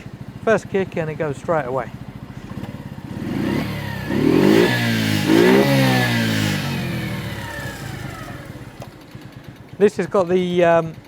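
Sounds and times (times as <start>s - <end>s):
small engine revving: 1.9s - 9.6s.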